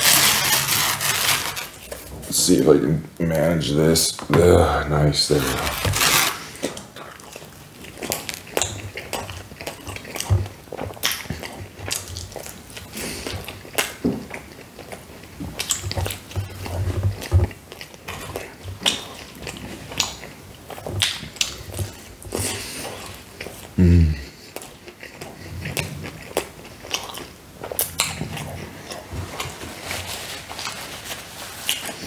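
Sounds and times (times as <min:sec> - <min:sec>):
person chewing pizza: 0:00.0 - 0:02.6, 0:04.4 - 0:32.0
wet mouth clicks and smacks: 0:06.6 - 0:12.5, 0:13.2 - 0:15.0, 0:20.9 - 0:23.6.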